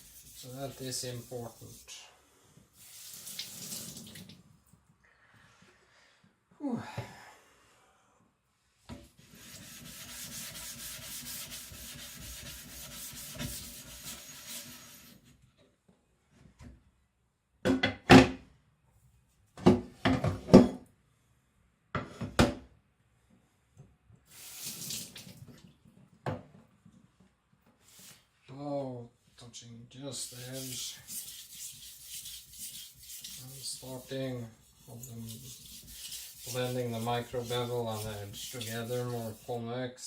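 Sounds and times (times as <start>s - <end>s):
water running from a tap: 0.0s - 1.3s, 2.8s - 4.4s, 24.3s - 25.7s, 30.2s - 34.1s, 34.8s - 39.5s.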